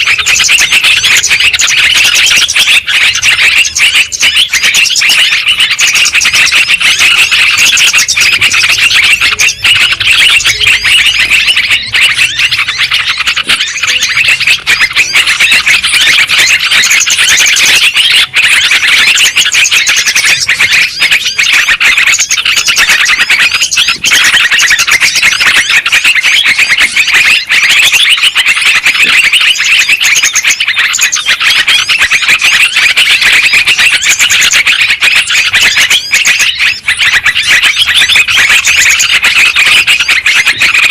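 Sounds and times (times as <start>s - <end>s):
birds singing and chattering: 0.0s - 40.9s.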